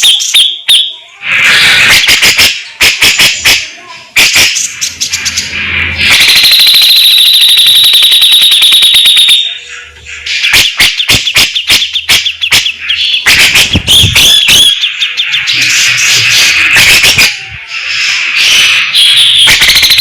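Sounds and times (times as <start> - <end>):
bird singing trills and chatter: 0.1 - 6.5, 9.4 - 20.0.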